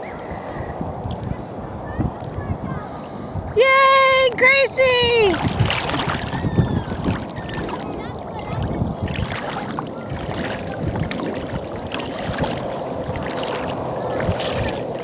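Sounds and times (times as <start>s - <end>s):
ocean water sloshing and lapping: 5.2s - 15.0s.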